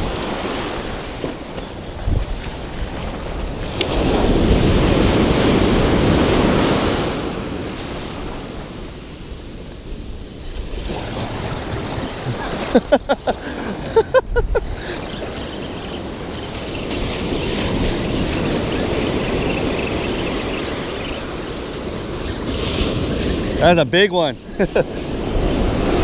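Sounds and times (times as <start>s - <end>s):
wind on microphone: 0.0s - 23.8s
fishing reel whirring: 8.2s - 26.0s.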